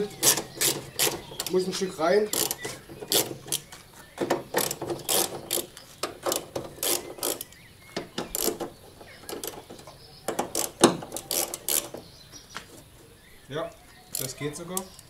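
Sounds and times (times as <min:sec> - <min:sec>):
ratchet wrench clicking: 0:02.3 - 0:03.6, 0:04.6 - 0:07.6, 0:08.2 - 0:08.7, 0:10.3 - 0:12.0, 0:14.1 - 0:15.0.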